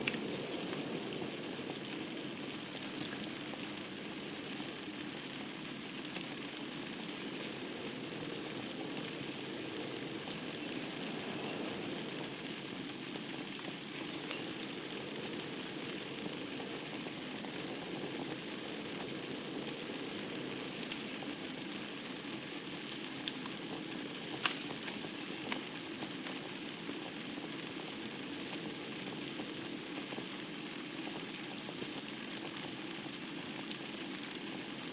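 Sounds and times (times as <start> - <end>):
fire flame rushing: 0.0 - 26.6
logs crackling and popping: 0.0 - 34.9.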